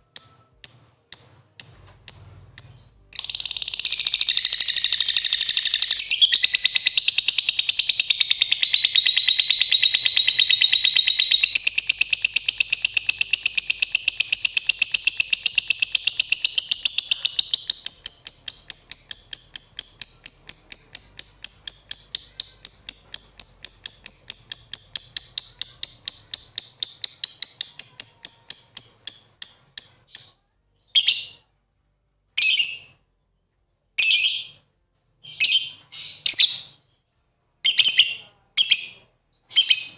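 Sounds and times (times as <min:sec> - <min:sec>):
lovebirds chirping: 0:00.0 - 0:31.4.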